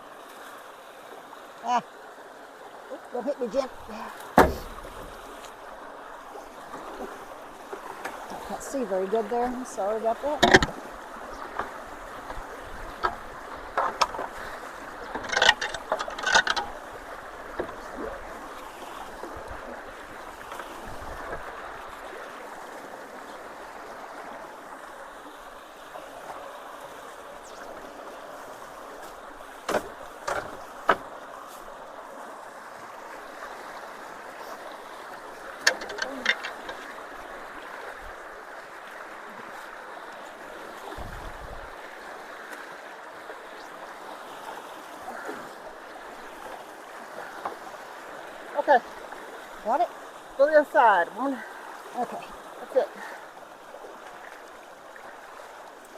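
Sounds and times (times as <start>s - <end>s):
water rushing through culvert: 0.0s - 55.9s
sharp knocks and clatters: 4.4s - 5.3s, 10.4s - 10.8s, 15.0s - 16.8s, 29.7s - 31.0s.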